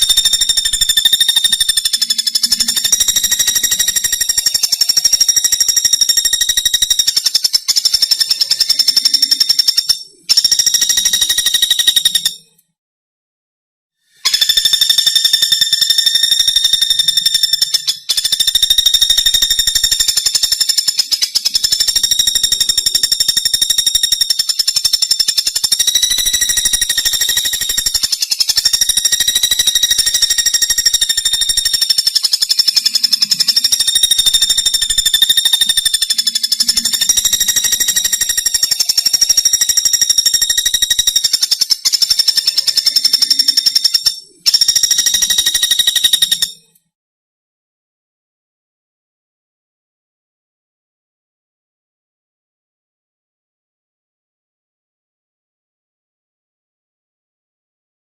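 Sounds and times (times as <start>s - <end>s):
woodpecker rattling trill: 0.0s - 12.6s, 14.1s - 46.8s.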